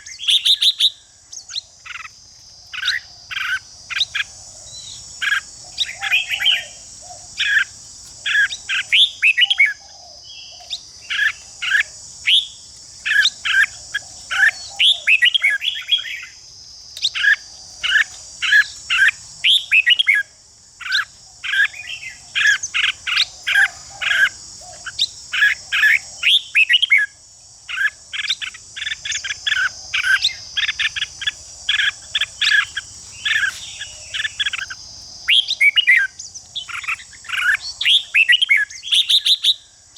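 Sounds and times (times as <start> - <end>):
high insect drone: 0.0 - 39.9
birds singing short varied notes: 27.7 - 39.9.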